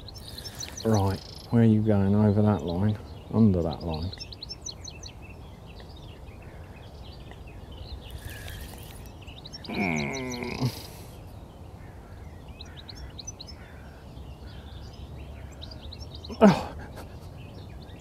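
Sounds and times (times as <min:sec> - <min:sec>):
low steady background noise: 0:00.0 - 0:18.0
songbirds singing and chirping: 0:00.0 - 0:18.0
loud falling bird call: 0:09.6 - 0:11.1.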